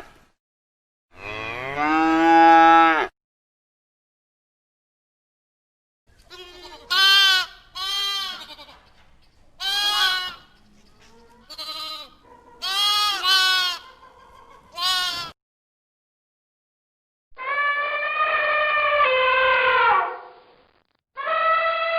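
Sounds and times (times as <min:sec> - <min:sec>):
goat bleating: 0:06.3 - 0:08.8, 0:09.6 - 0:10.6, 0:11.4 - 0:14.0, 0:14.7 - 0:15.4.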